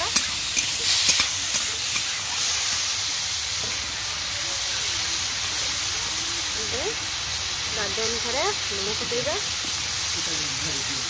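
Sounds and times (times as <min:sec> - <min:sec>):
vegetables sizzling in hot oil: 0:00.0 - 0:11.0
metal spatula clicking on pan: 0:00.1 - 0:02.2.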